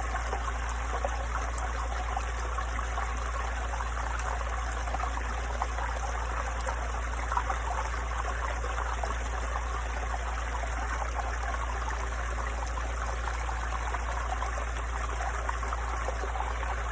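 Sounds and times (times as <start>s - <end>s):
stream babbling over rocks: 0.0s - 16.9s.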